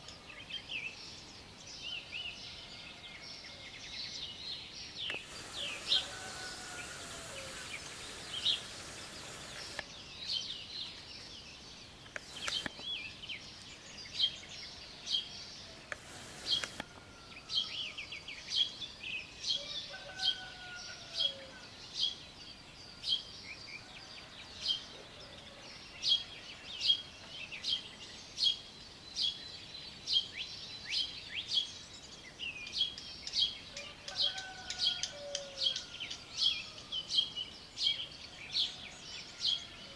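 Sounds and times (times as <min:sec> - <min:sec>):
songbirds chirping: 0:00.0 - 0:39.9
distant falling bird calls: 0:05.0 - 0:09.9, 0:12.0 - 0:13.0, 0:15.8 - 0:17.4
brief hiss: 0:05.1 - 0:09.9, 0:12.2 - 0:12.8, 0:15.9 - 0:17.0.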